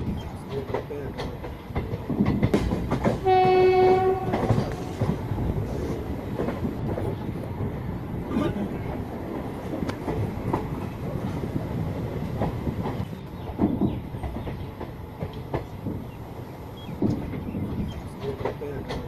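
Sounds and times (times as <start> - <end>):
train coach rattling: 0.0 - 19.0
train rumbling along track: 0.0 - 19.0
wheels knocking over rail joints: 0.5 - 5.6.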